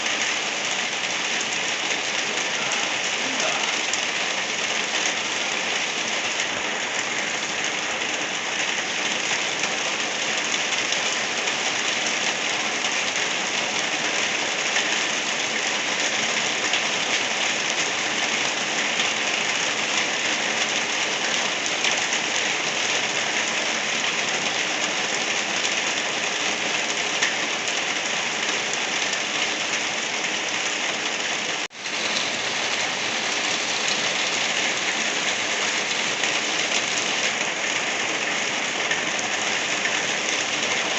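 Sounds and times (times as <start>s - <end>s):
light rain pattering: 0.0s - 40.9s.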